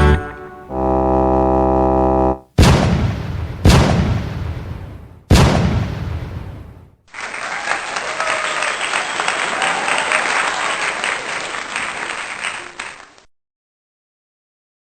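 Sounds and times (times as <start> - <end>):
boom: 2.6 - 6.9
people cheering: 7.1 - 13.2
crowd applauding: 7.1 - 13.3.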